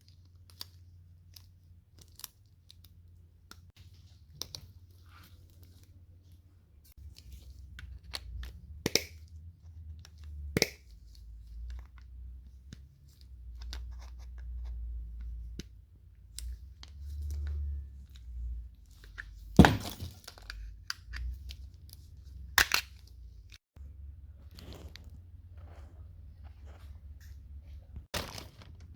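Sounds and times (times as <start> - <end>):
low rumble of handling noise: 2.8 - 28.9.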